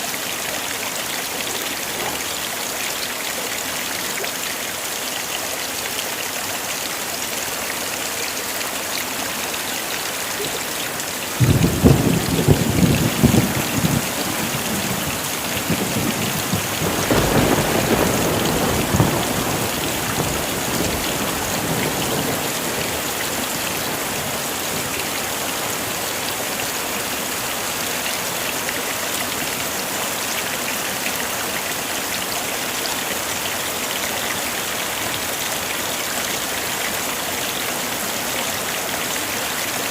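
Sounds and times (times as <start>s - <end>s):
heavy rain: 0.0s - 39.9s
thunder crack and rumble: 11.4s - 23.2s.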